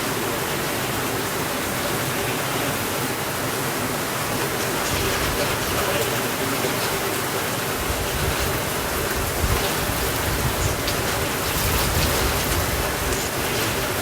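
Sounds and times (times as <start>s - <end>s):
heavy rainfall hiss: 0.0s - 14.0s.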